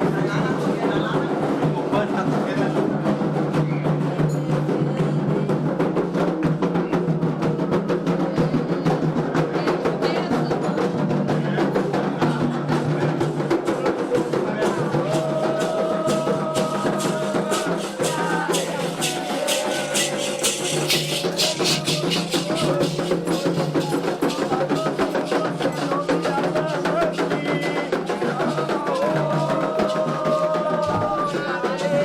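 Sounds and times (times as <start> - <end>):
percussion rhythm with rattles: 0.0 - 32.0
person singing: 14.6 - 32.0.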